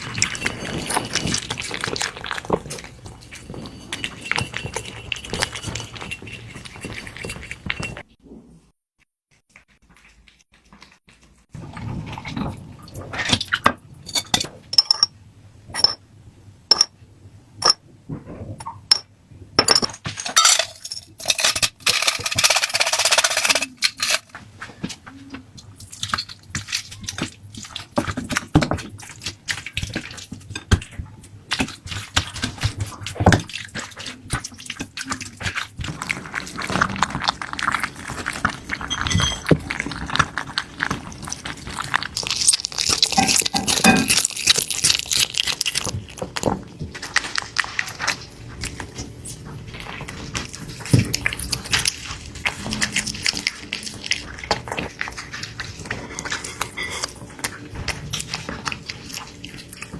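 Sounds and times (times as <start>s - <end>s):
utensils clinking against dishes: 0.0s - 8.0s, 18.9s - 24.3s, 38.9s - 39.6s, 42.2s - 45.9s, 55.8s - 57.6s
crackling and rustling of handling: 0.0s - 8.2s, 9.3s - 15.0s, 19.7s - 59.9s.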